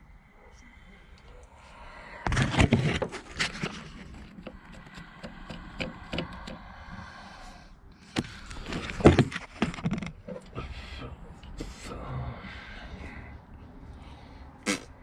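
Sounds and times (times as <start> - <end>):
irregular knocks and scraping: 2.2 - 7.5, 8.1 - 10.7.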